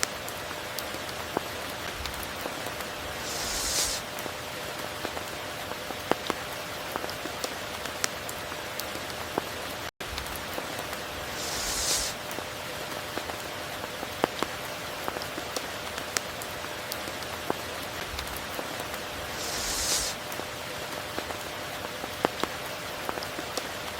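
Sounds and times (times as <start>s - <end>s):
raindrops ticking: 0.0s - 19.4s
steady rain: 0.0s - 23.9s.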